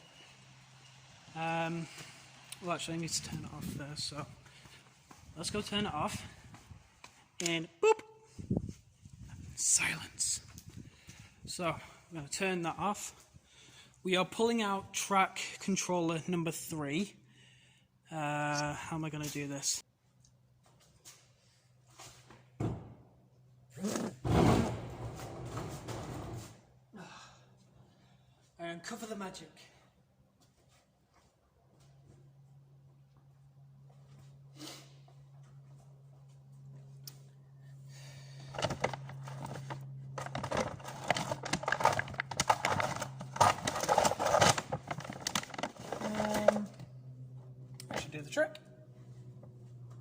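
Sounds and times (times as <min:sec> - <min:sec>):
steady low hum: 0:00.0 - 0:50.0
objects rustling and clattering: 0:38.4 - 0:47.2.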